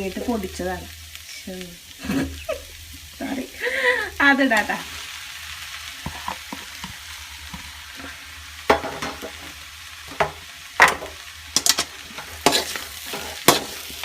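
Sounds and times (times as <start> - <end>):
food sizzling in a frying pan: 0.0 - 14.0
spoon clacking against pan: 10.1 - 14.0.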